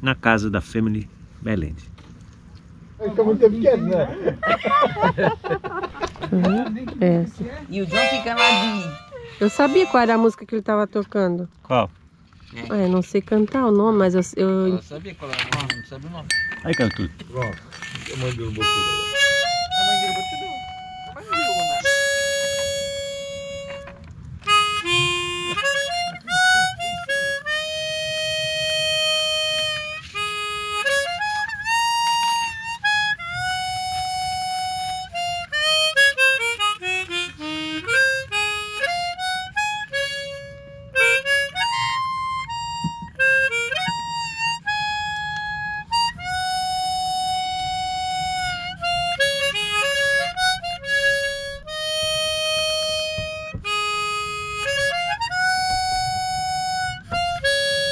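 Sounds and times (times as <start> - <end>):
harmonica melody: 6.2 - 11.0, 16.7 - 57.9.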